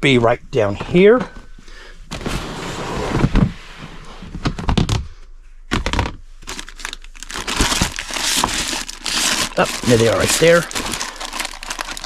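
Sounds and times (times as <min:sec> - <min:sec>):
rustling in storage bin: 0:06.4 - 0:12.0.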